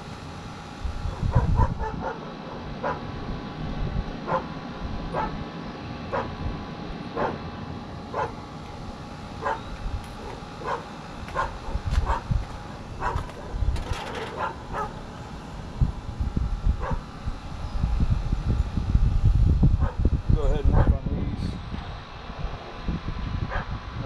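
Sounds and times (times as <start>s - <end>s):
dog barking: 1.3s - 2.2s, 2.8s - 3.0s, 4.3s - 4.5s, 5.2s - 5.4s, 6.1s - 6.3s, 7.2s - 7.4s, 8.1s - 8.4s, 9.4s - 12.3s, 13.0s - 13.3s, 14.2s - 15.0s, 16.8s - 17.0s, 19.8s - 20.0s, 23.5s - 23.7s.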